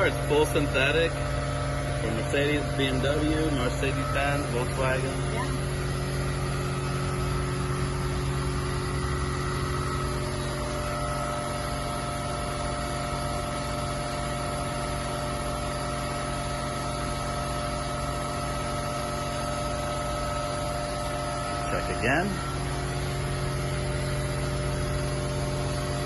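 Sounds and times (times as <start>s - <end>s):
steady tones: 0.0s - 11.6s
mechanical hum: 0.0s - 26.0s.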